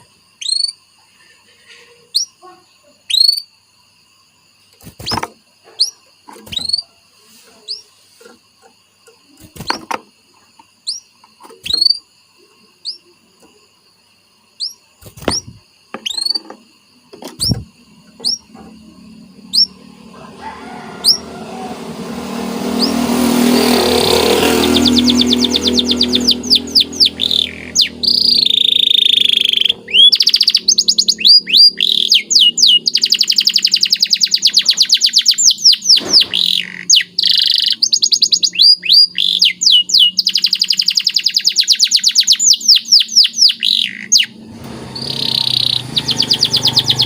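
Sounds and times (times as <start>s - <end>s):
canary chirping: 0.0s - 0.8s, 1.6s - 3.6s, 4.6s - 13.7s, 14.5s - 47.0s
dense loud sound: 18.8s - 28.1s.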